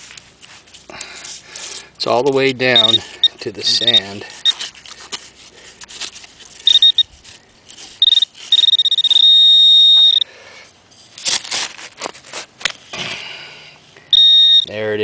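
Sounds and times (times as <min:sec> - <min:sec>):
metal detector beeping: 0:02.6 - 0:04.7, 0:06.6 - 0:07.1, 0:08.0 - 0:10.3, 0:14.1 - 0:14.8.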